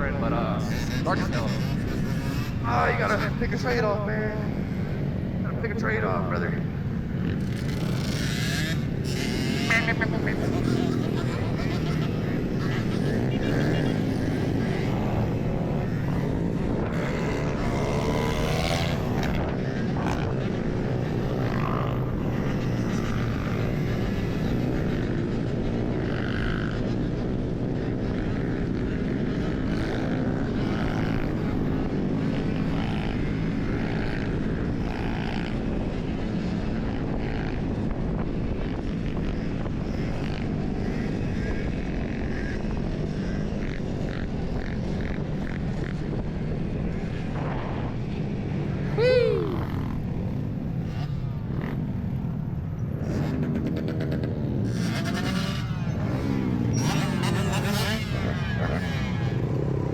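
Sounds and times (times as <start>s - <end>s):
road noise: 0.0s - 59.9s
wind buffeting microphone: 8.6s - 54.6s.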